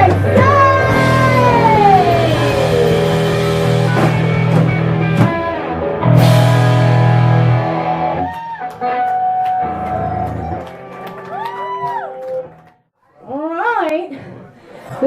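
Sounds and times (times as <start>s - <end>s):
drum and cymbal hits: 0.0s - 7.6s
distorted electric guitar chords: 0.0s - 11.0s.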